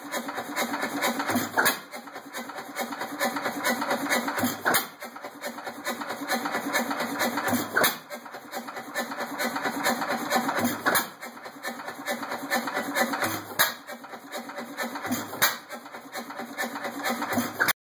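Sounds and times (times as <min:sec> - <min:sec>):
engine clatter while coasting: 0:00.0 - 0:17.8
engine firing: 0:00.1 - 0:01.8.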